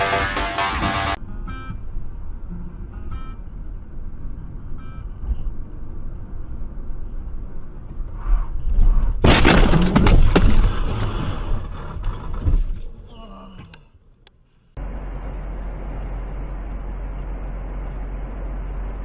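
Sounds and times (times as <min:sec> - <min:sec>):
road and engine rumble: 0:00.0 - 0:19.0
vehicle crash: 0:07.8 - 0:13.1.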